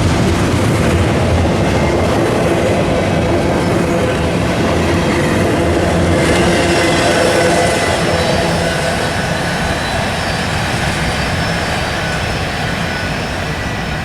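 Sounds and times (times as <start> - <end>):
train wheels rumbling on rails: 0.0 - 14.0
wheel squeal: 5.0 - 14.0.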